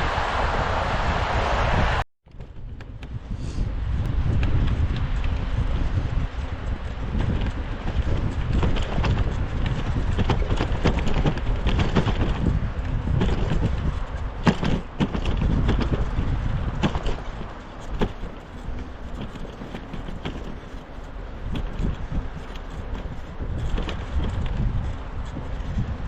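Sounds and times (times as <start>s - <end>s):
wind buffeting microphone: 0.0s - 26.0s
bicycle clicks and knocks: 2.3s - 26.0s
tyres crunching over snow: 3.3s - 26.0s.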